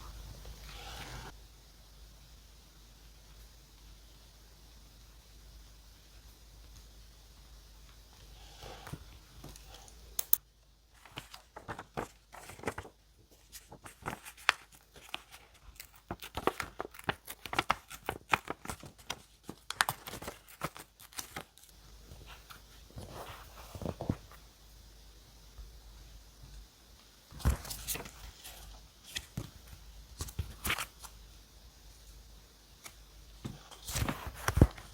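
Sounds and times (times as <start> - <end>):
soft paper rustles: 10.9 - 24.4, 27.3 - 31.3, 32.8 - 34.9
paper tearing and crinkling: 11.0 - 21.7, 33.7 - 34.9.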